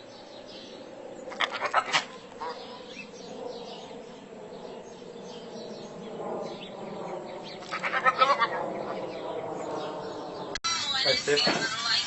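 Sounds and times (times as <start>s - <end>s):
rapid animal calls: 1.3s - 4.1s, 7.4s - 9.4s.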